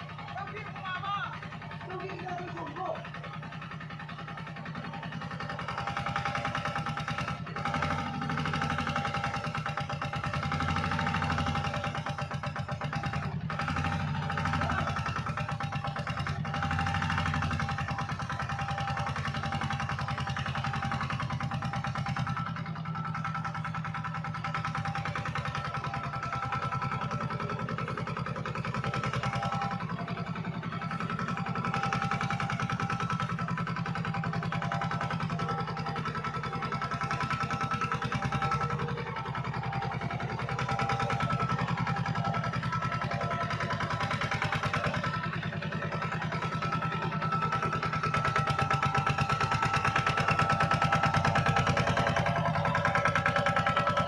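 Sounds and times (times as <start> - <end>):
tractor engine droning: 0.0 - 54.0.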